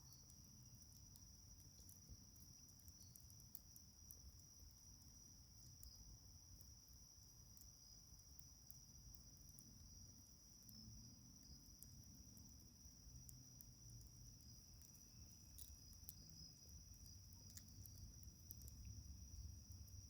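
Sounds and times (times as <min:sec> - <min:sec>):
crickets trilling: 0:00.0 - 0:20.0
wood fire crackling: 0:11.7 - 0:20.0.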